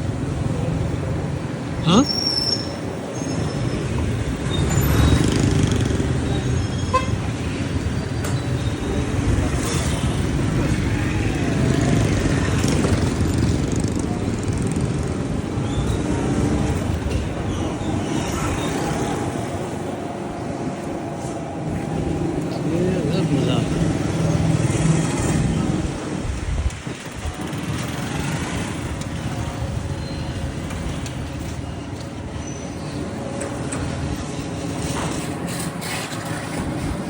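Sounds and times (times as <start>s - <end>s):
street traffic noise: 0.0s - 37.0s
vehicle horn toots: 6.9s - 7.2s.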